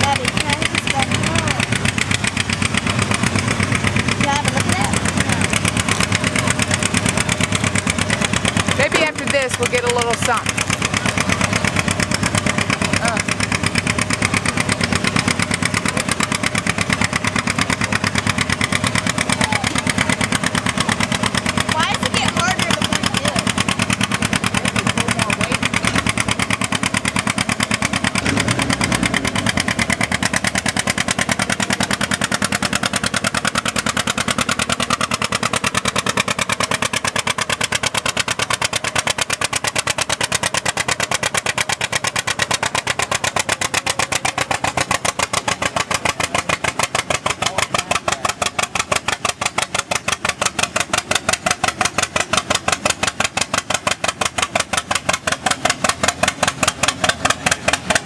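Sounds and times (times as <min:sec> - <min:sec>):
tractor engine putting: 0:00.0 - 0:58.0.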